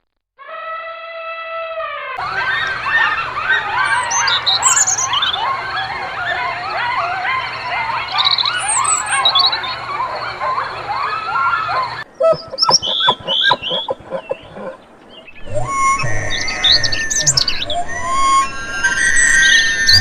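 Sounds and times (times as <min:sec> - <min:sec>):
flock of birds chattering: 0:02.2 - 0:20.0
sharp bird calls and clicks: 0:02.4 - 0:18.4
low hum: 0:13.1 - 0:20.0.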